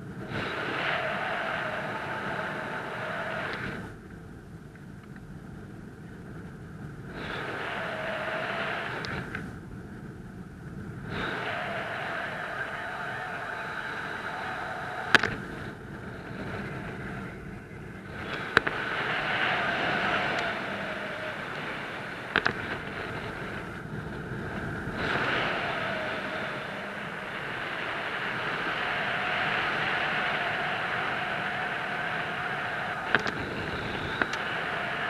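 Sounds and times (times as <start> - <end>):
wind rushing over microphone: 0.0 - 35.0
sharp clicks: 15.1 - 15.4, 22.3 - 22.9, 33.0 - 33.5, 34.1 - 34.4.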